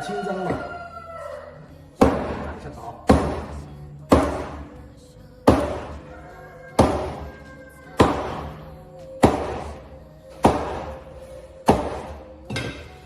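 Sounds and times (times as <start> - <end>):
background music: 0.0 - 13.0
cleaver chopping fish: 2.0 - 2.5, 3.1 - 4.6, 5.5 - 5.9, 10.4 - 11.0.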